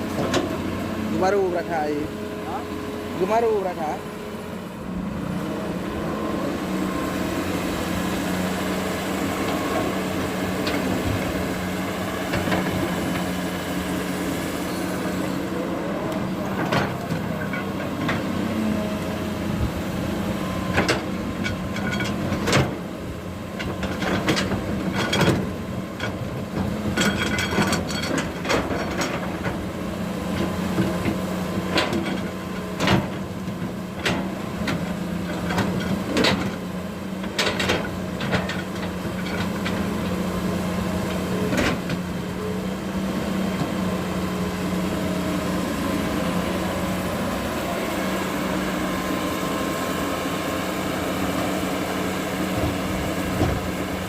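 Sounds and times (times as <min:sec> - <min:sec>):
diesel engine running: 0:00.0 - 0:54.0
knocks and clatter of digging: 0:16.4 - 0:18.5, 0:20.5 - 0:22.9, 0:23.5 - 0:29.7, 0:30.3 - 0:40.2, 0:41.0 - 0:42.1.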